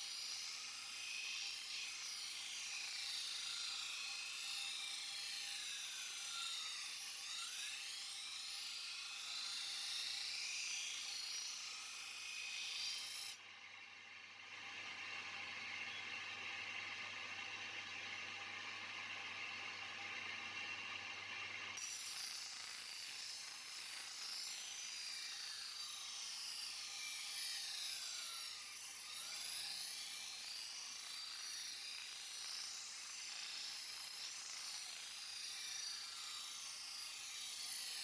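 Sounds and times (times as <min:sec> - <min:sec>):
knife grinding on sharpening stone: 0:12.4 - 0:13.4.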